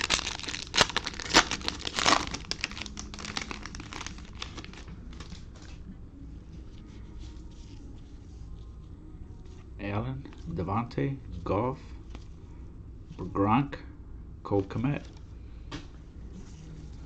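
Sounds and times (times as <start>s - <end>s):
cellophane crinkling and tearing: 0.0s - 5.7s.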